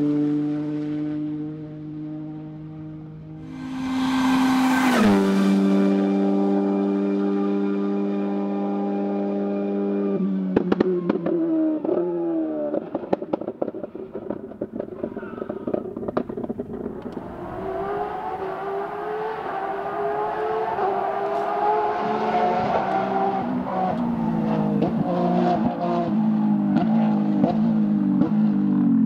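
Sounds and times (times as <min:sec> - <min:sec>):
rally car engine accelerating: 0:00.0 - 0:29.0
exhaust pops and bangs: 0:12.7 - 0:17.2.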